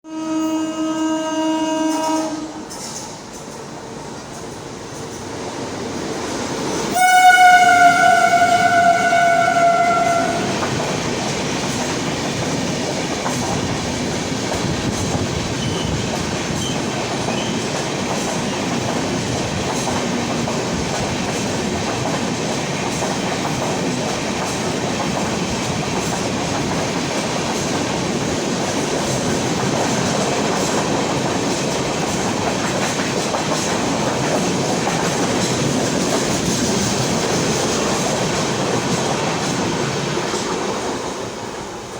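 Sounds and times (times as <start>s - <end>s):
train coaches rushing past: 1.8s - 41.9s
wheels clacking over rail joints: 7.9s - 41.2s.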